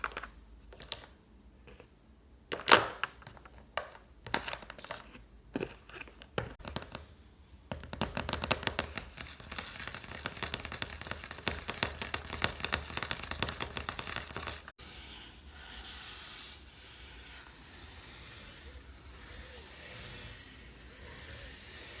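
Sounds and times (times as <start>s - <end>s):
soft hissing swishes: 14.8s - 22.0s.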